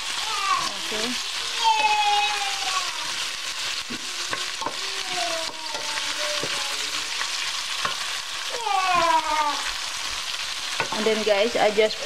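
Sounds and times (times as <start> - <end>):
food sizzling in a pan: 0.0 - 12.0
wooden spoon knocking on pan: 3.9 - 6.6, 10.8 - 11.2.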